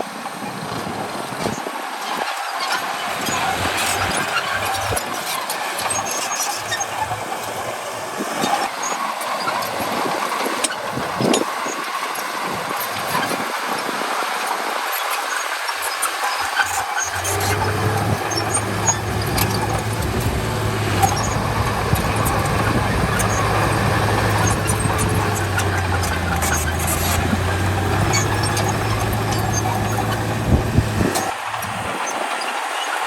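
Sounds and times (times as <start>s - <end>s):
heavy diesel machinery running: 2.5s - 11.5s, 15.7s - 33.0s.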